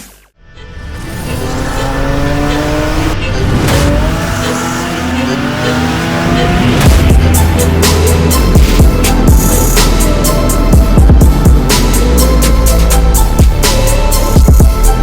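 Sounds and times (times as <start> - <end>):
background music: 0.0 - 15.0
car engine accelerating hard: 0.9 - 12.8.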